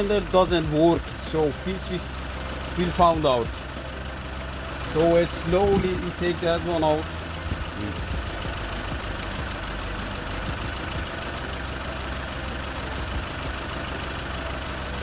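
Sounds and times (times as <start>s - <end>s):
car engine idling with misfire: 0.0s - 15.0s.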